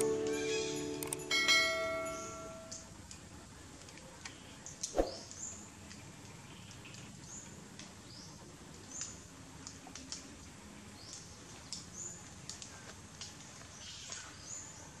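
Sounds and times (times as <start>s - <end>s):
birds chirping: 4.3s - 5.7s
faint clicks: 8.7s - 14.4s.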